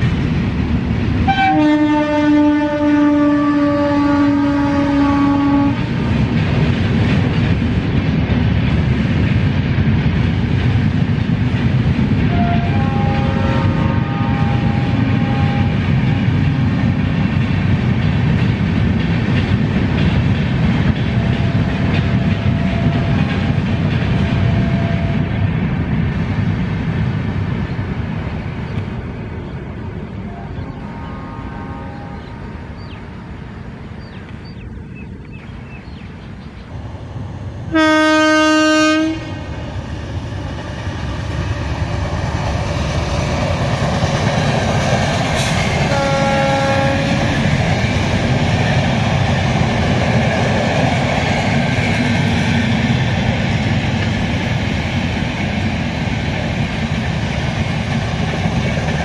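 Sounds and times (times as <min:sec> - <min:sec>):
train rumbling past: 0:00.0 - 0:59.0
locomotive horn blast: 0:01.3 - 0:05.9, 0:12.3 - 0:16.2, 0:30.3 - 0:32.6, 0:37.7 - 0:39.6, 0:45.4 - 0:47.3
wheel clickety-clack: 0:15.9 - 0:24.8
short horn calls: 0:37.7 - 0:39.4.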